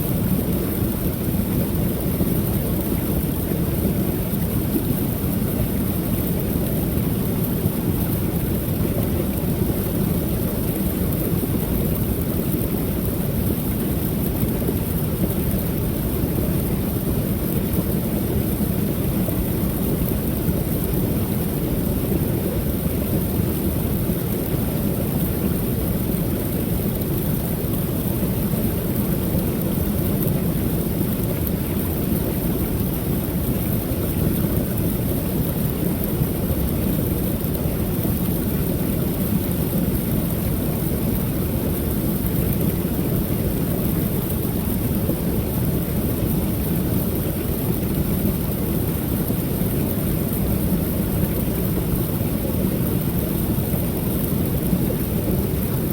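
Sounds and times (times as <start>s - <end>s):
water pouring over waterfall: 0.0s - 55.9s.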